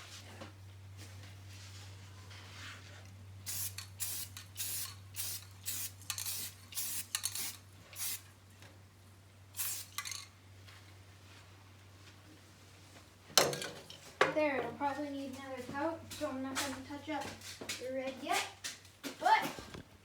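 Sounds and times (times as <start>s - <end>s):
low electrical hum: 0.0s - 20.0s
spray paint hissing: 3.4s - 8.2s, 9.6s - 10.2s.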